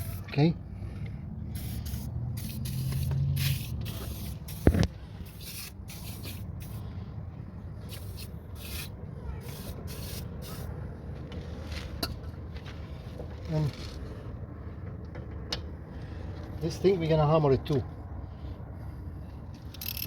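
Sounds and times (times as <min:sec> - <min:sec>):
aerosol can spraying: 0:01.6 - 0:06.8, 0:07.9 - 0:10.7.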